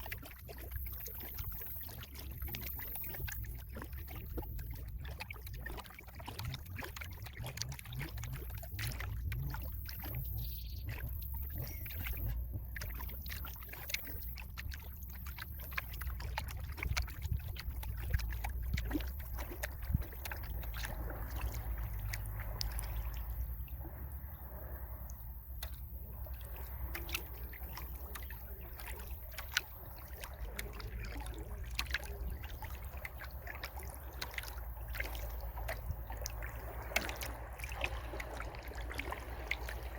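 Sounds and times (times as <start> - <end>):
paddle splashing in water: 0.0 - 39.9
water dripping: 0.0 - 39.9
low rumble: 16.0 - 39.9.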